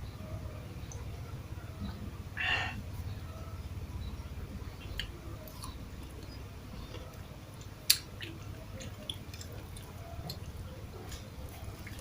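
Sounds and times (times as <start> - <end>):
steady low hum: 0.0 - 12.0
person chewing food: 4.8 - 12.0.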